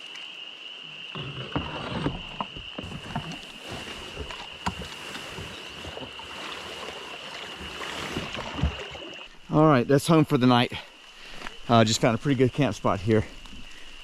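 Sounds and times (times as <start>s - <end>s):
paddle knocking against hull: 1.2s - 9.3s
water splashing: 1.2s - 9.6s.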